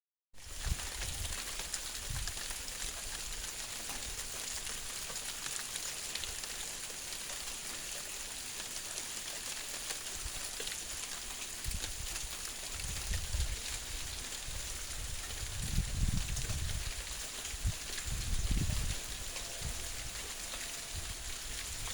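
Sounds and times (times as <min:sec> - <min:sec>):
hail pattering: 0:00.4 - 0:21.9
wind buffeting microphone: 0:00.5 - 0:01.4, 0:02.0 - 0:02.4, 0:11.6 - 0:21.9.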